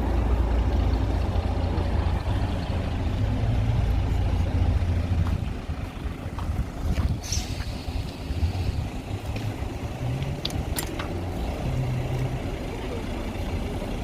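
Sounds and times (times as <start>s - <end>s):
bus engine humming: 0.0s - 14.0s.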